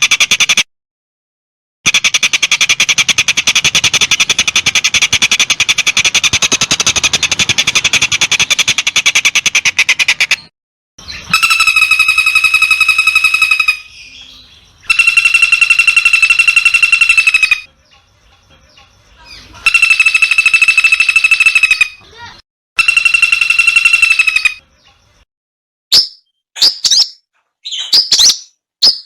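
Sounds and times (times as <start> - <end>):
higher tonal pulsed bird call: 11.0 - 17.7, 19.6 - 24.9
buzzy pulsed bird trills: 11.0 - 25.2.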